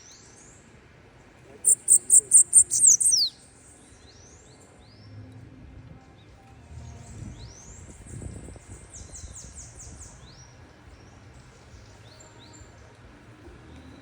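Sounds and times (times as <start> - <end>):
low steady background rumble: 0.0 - 14.0
bird singing high thin notes: 1.7 - 3.4.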